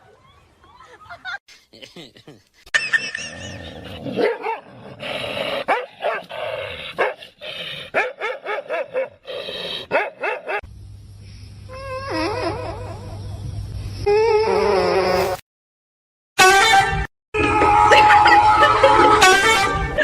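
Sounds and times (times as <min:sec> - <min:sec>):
dog barking and yipping: 0:03.4 - 0:04.7, 0:05.6 - 0:06.3, 0:07.0 - 0:07.2, 0:07.9 - 0:09.2, 0:09.9 - 0:10.6
low hum with wavering whine: 0:10.7 - 0:14.1.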